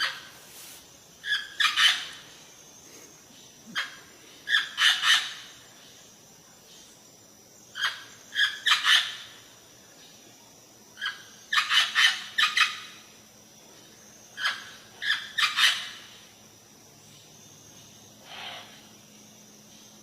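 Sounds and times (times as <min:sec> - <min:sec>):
bird harsh calls: 0:00.0 - 0:05.6, 0:11.0 - 0:13.0, 0:18.2 - 0:18.9.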